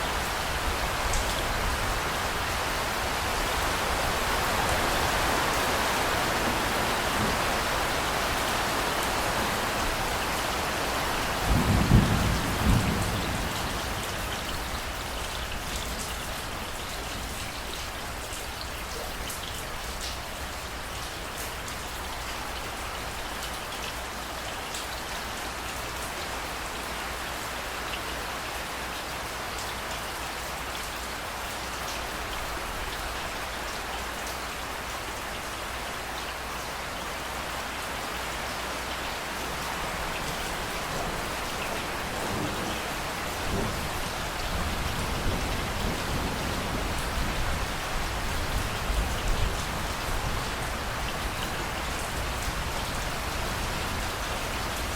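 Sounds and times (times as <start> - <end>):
rain pattering: 0.0 - 54.9
low rumble of thunder: 11.3 - 15.8, 39.9 - 50.7.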